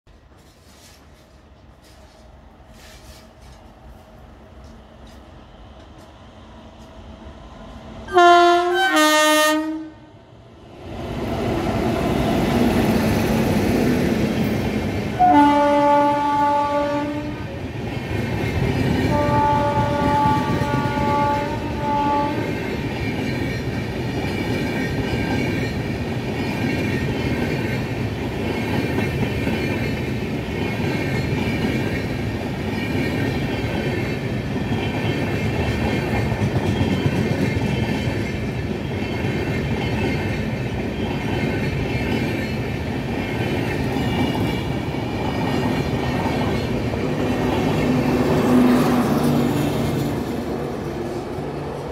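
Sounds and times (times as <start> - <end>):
train coaches rumbling past: 0.1 - 51.9
locomotive horn blasts: 8.1 - 10.1, 15.2 - 17.5, 19.1 - 22.6.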